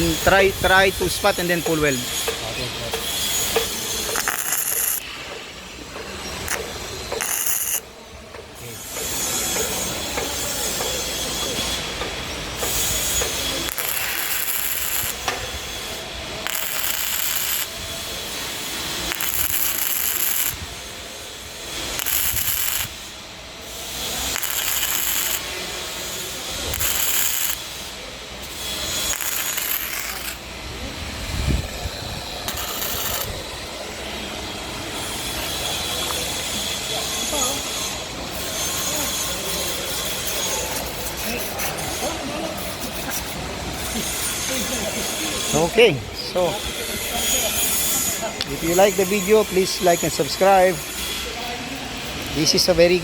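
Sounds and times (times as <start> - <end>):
welding arc crackling: 3.0 - 5.2, 6.5 - 7.9, 11.6 - 30.7, 31.7 - 33.7, 45.6 - 51.1.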